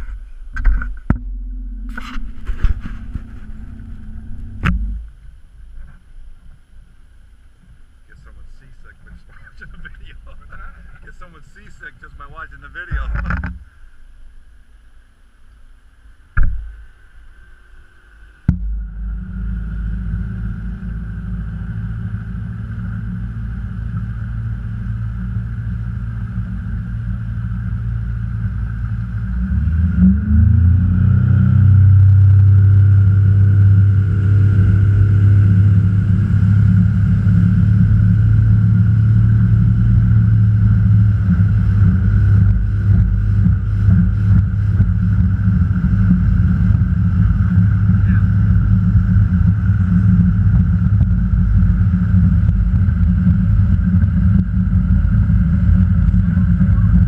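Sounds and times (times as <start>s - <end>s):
boat motor droning: 0.0s - 57.0s
sharp knock: 16.4s - 16.8s.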